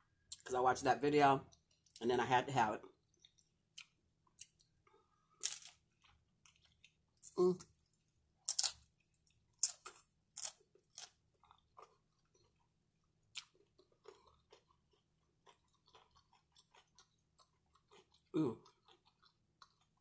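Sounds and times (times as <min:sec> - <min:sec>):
crunching tortilla chips: 0:03.8 - 0:07.0, 0:13.3 - 0:20.0
wet chewing: 0:07.8 - 0:20.0.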